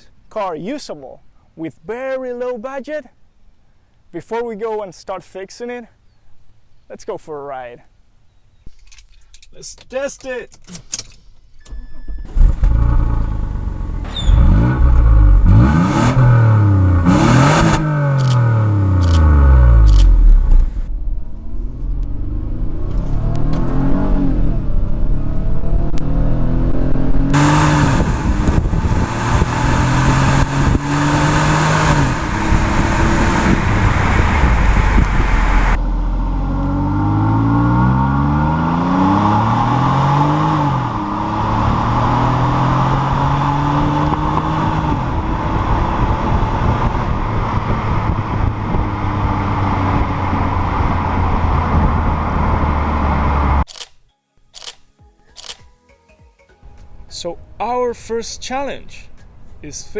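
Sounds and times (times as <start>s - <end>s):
car engine revving: 8.7s - 53.7s.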